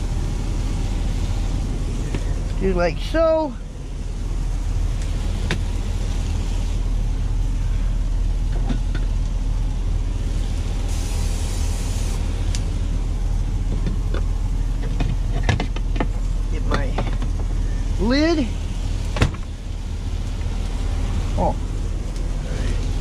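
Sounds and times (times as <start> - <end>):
diesel truck engine idling: 0.0 - 23.0
short hiss: 10.8 - 12.3.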